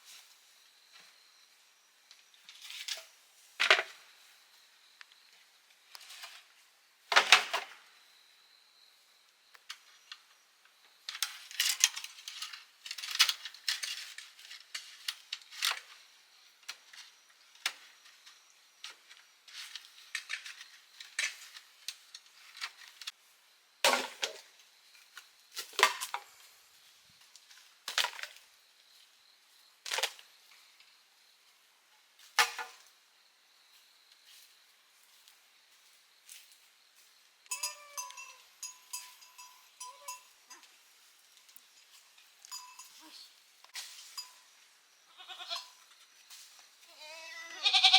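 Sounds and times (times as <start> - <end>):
bamboo knocking and clattering: 7.1 - 7.8, 23.8 - 24.5, 25.5 - 26.3, 27.9 - 28.4, 32.3 - 32.9.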